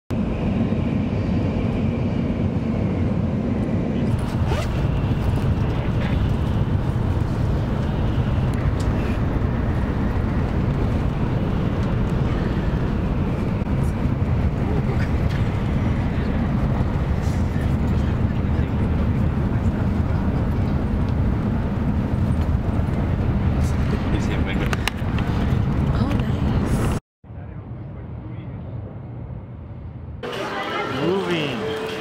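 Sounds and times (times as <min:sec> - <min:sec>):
train rumbling inside cabin: 0:00.1 - 0:32.0.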